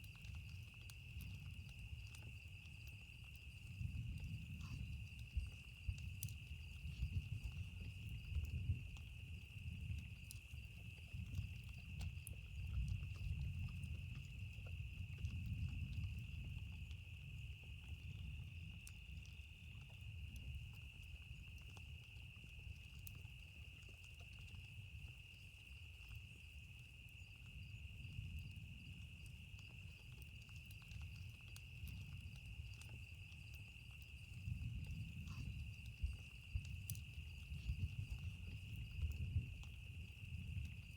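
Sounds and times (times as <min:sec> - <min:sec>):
campfire crackling: 0:00.0 - 0:40.9
night insects droning: 0:00.0 - 0:40.9.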